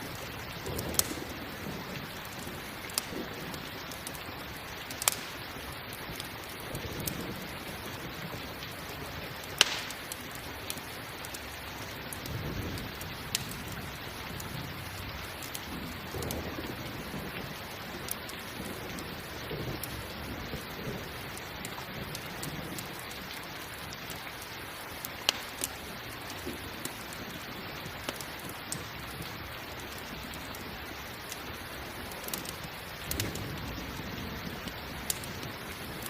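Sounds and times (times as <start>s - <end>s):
campfire crackling and popping: 0.0s - 36.0s
steady rain: 0.0s - 36.0s
low thunder rumbles: 0.1s - 3.9s, 12.2s - 23.0s, 32.9s - 36.0s.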